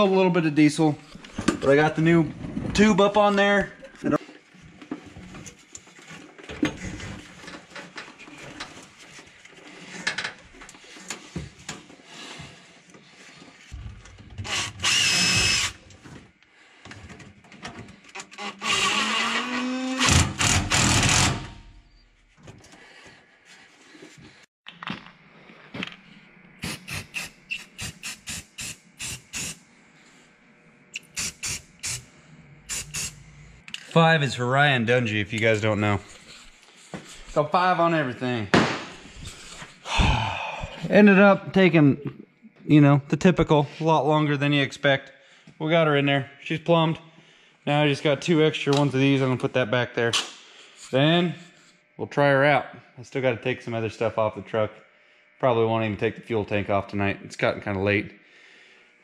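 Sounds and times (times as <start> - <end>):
cordless drill whining: 14.4 - 15.9, 18.2 - 21.5.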